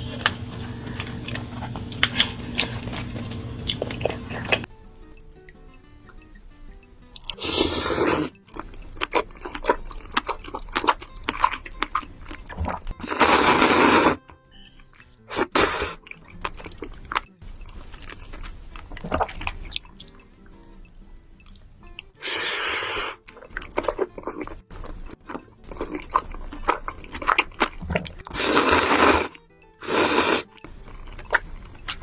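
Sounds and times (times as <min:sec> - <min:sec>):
quiet background music: 0:00.0 - 0:32.0
wet chewing: 0:00.0 - 0:32.0
loud slurps: 0:07.3 - 0:08.4, 0:13.0 - 0:14.2, 0:22.2 - 0:23.3, 0:28.2 - 0:31.5.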